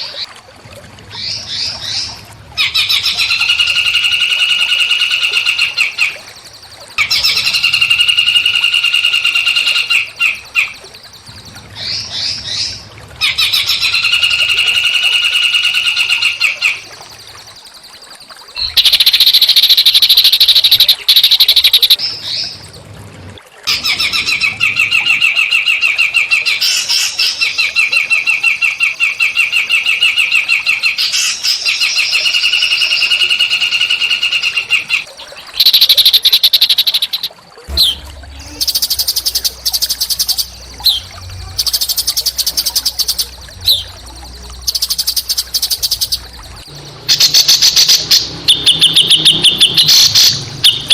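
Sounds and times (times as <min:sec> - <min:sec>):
songbirds singing buzzy trills: 0:01.2 - 0:23.0, 0:23.7 - 0:50.9.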